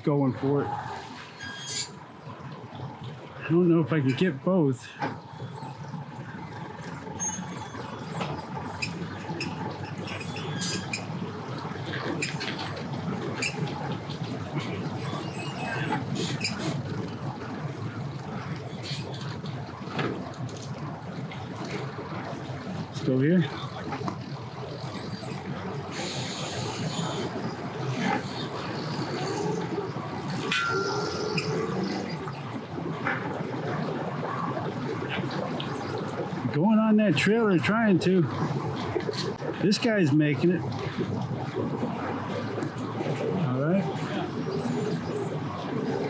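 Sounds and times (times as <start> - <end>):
boat engines rumbling: 0.0 - 46.0
churning water: 0.0 - 46.0
short high-pitched squeaks: 1.4 - 2.0, 10.1 - 11.1, 30.5 - 31.8.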